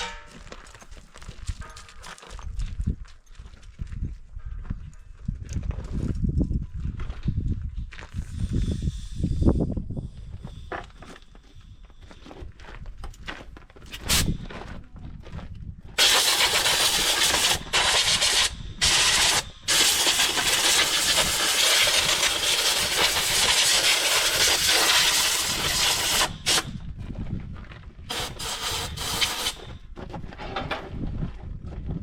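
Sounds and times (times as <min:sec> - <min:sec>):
compressed air blow gun hissing: 0:16.0 - 0:26.8, 0:28.1 - 0:29.7.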